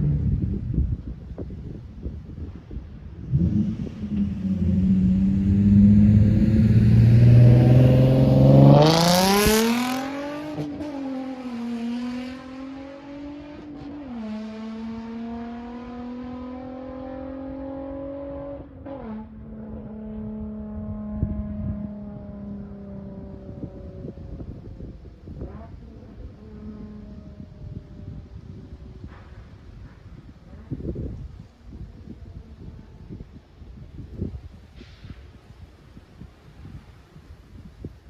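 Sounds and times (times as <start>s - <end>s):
car exhaust revving: 3.2s - 13.5s.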